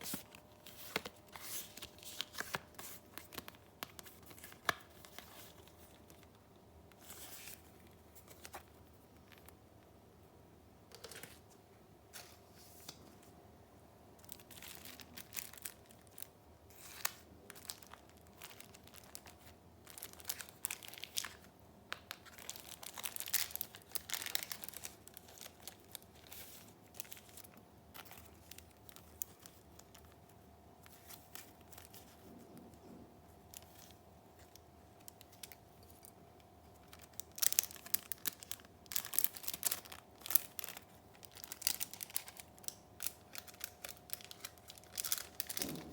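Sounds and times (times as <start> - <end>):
paper rustling: 0.0 - 6.2.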